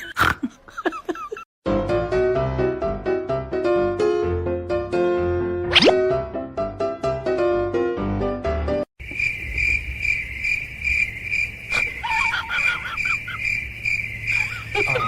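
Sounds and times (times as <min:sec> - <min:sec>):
piano music: 0:01.6 - 0:08.9
cricket chirping: 0:09.0 - 0:15.0.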